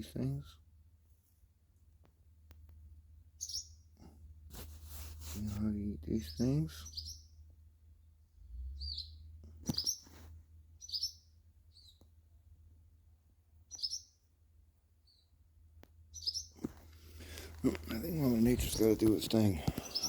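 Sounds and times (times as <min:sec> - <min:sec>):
young bird chirping: 0:03.3 - 0:04.0, 0:06.0 - 0:07.6, 0:08.6 - 0:12.2, 0:13.6 - 0:14.3, 0:15.0 - 0:20.0.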